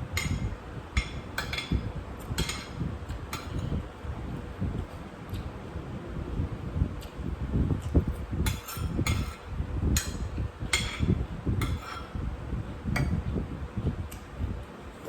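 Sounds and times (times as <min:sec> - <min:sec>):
wind rumble on microphone: 0:00.0 - 0:15.0
utensils scraping dishes: 0:00.1 - 0:03.8, 0:08.5 - 0:12.2.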